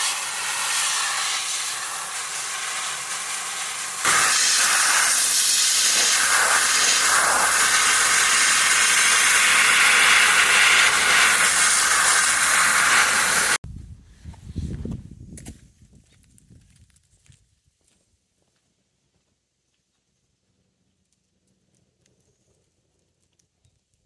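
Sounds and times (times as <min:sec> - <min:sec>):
sandblaster hissing: 0:00.0 - 0:13.6.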